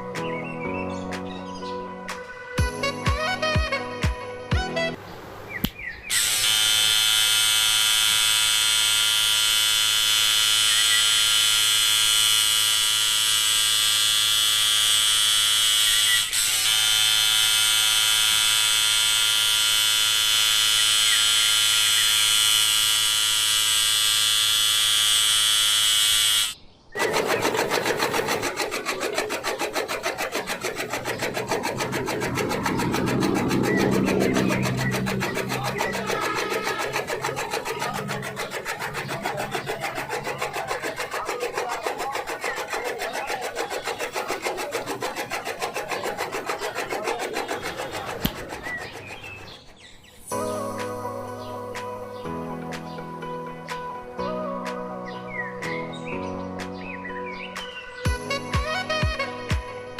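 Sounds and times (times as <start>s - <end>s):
rapidly ticking motor buzz: 6.1s - 49.8s
small electric motor whining: 6.1s - 50.4s.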